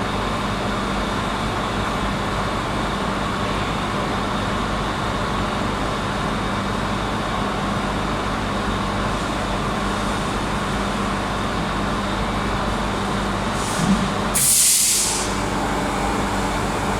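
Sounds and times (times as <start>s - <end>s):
machinery hum: 9.2s - 16.9s
loud air hiss: 13.5s - 16.9s.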